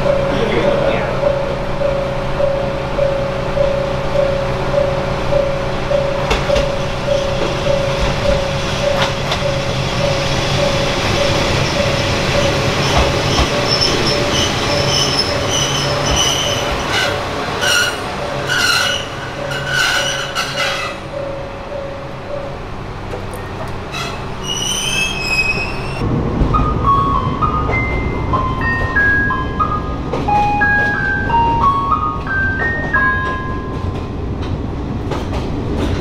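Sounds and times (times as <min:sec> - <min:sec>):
level crossing bell dinging: 0:00.0 - 0:16.1
diesel train engine running: 0:00.0 - 0:36.0
train brake squeal: 0:06.6 - 0:21.2, 0:23.9 - 0:26.0.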